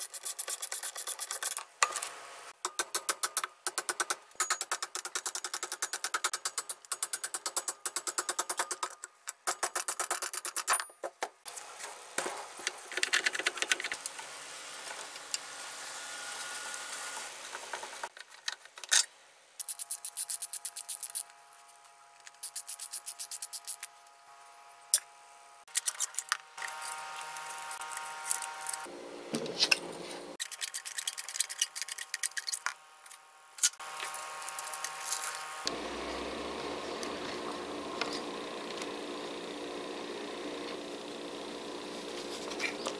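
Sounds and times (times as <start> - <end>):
screwdriver and metal parts rattling: 18.2 - 24.0, 29.6 - 32.8.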